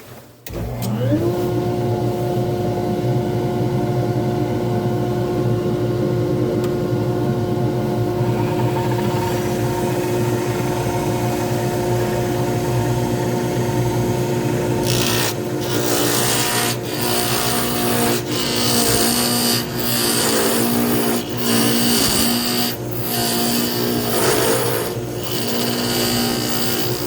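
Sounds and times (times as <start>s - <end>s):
lathe motor hum: 2.6s - 27.0s
tool scraping spinning wood: 14.6s - 27.0s.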